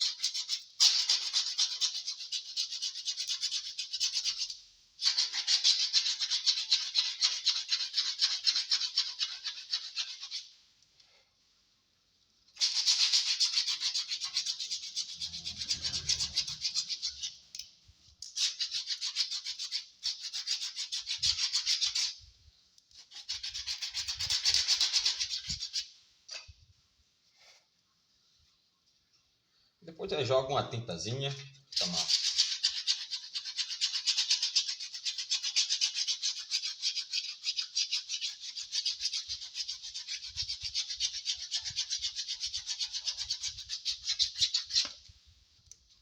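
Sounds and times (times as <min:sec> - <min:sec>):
sandpaper rasping on wood: 0:31.9 - 0:44.8.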